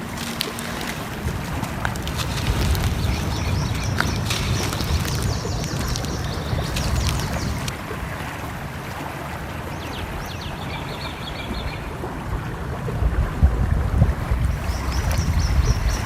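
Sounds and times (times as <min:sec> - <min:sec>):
sharp crackles: 0:00.0 - 0:07.8
stream flowing: 0:00.0 - 0:16.0
small birds chirping: 0:01.8 - 0:07.7, 0:09.6 - 0:11.9, 0:14.4 - 0:16.0.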